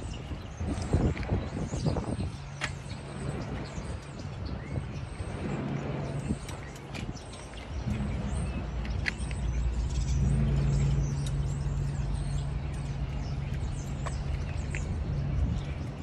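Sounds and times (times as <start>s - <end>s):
birds chirping faintly: 0.0s - 16.0s
engine idling: 7.7s - 16.0s.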